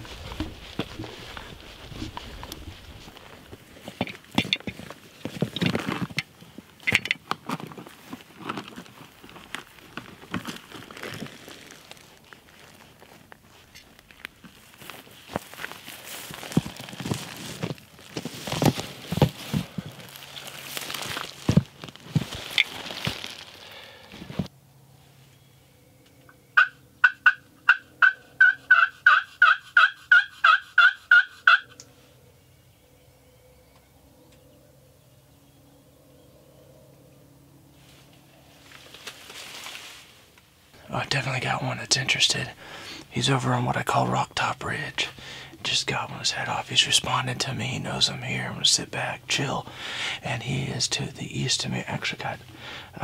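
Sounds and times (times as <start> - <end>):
footsteps crunching dry leaves: 0.0 - 4.0, 7.5 - 24.5, 37.8 - 40.4
raspy turkey call yelps: 26.6 - 31.8.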